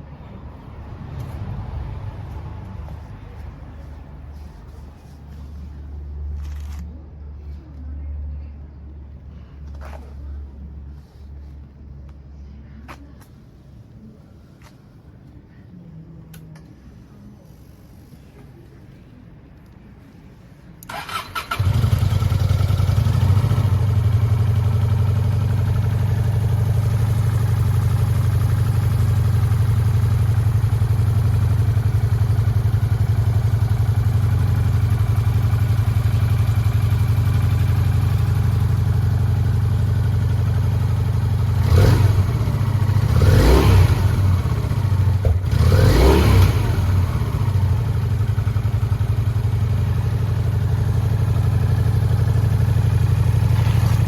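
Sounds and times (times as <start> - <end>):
motorcycle engine starting: 20.8 - 54.0
motorcycle engine idling: 20.9 - 54.0
motorcycle engine revving: 20.9 - 54.0.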